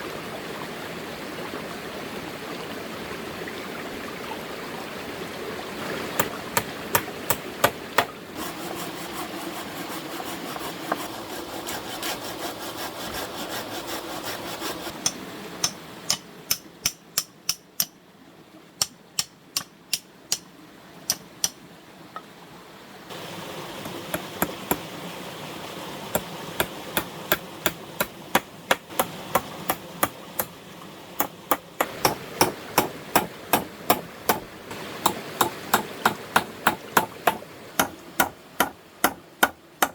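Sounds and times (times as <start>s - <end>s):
hand hammering blows: 6.2s - 8.2s, 14.9s - 17.9s, 23.8s - 24.8s, 26.1s - 30.5s, 31.2s - 34.4s, 35.0s - 39.9s.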